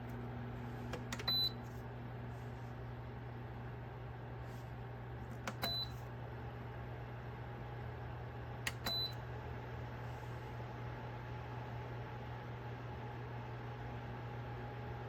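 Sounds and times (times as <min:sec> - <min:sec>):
heater fan hum: 0:00.0 - 0:15.0.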